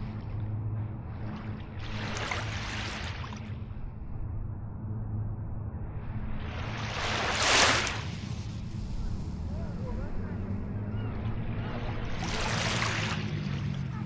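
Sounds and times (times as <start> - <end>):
low hum: 0.0 - 14.0
small sea waves washing in: 1.0 - 3.6, 6.0 - 10.2, 11.4 - 13.9.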